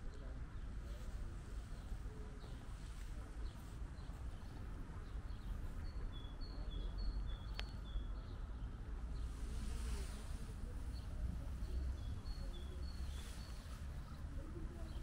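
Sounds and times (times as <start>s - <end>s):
low outdoor rumble: 0.0s - 15.0s
small bird singing: 3.4s - 15.0s.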